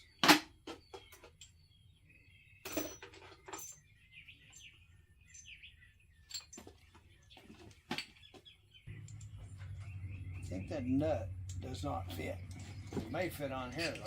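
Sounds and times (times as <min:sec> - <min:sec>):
faint birds chirping: 0:00.0 - 0:14.0
metal washers and bolts clinking: 0:02.6 - 0:05.6, 0:06.2 - 0:07.0, 0:08.9 - 0:09.9, 0:11.5 - 0:14.0.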